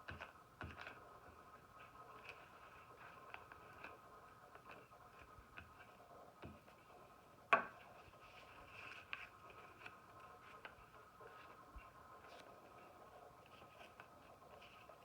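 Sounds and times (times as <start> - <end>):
faint steady hum: 0.0 - 15.0
paper rustling and folding: 7.8 - 15.0.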